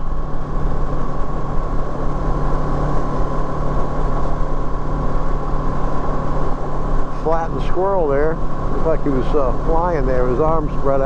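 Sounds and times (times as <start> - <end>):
high whine: 0.0 - 11.0
motorcycle engine cruising: 0.0 - 11.0.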